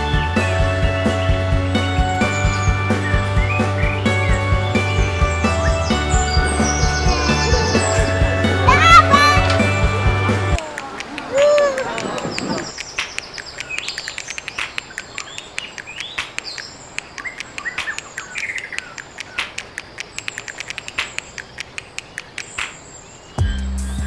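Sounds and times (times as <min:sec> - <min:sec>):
bass-heavy electronic music: 0:00.0 - 0:10.6, 0:23.4 - 0:24.0
birds chirping: 0:00.0 - 0:23.8
sharp ticks: 0:10.6 - 0:22.9.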